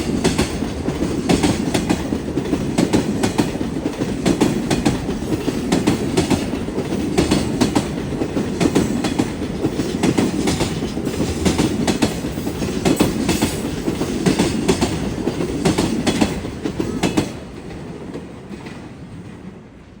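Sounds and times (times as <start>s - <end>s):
wheels clacking over rail joints: 0.0s - 19.4s
freight train rumbling: 0.0s - 20.0s.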